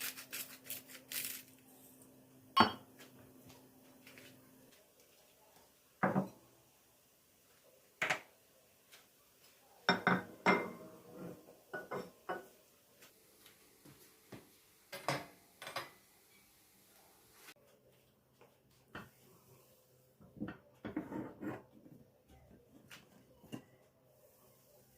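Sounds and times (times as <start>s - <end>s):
dishes and cutlery clinking: 9.9s - 12.6s, 14.9s - 16.4s.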